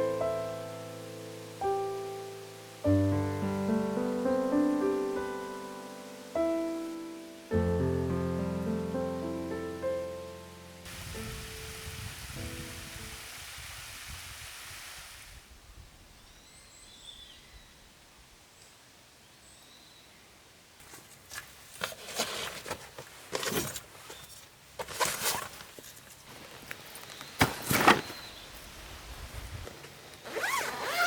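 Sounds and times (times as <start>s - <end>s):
rustling crunching noises: 20.8s - 31.0s.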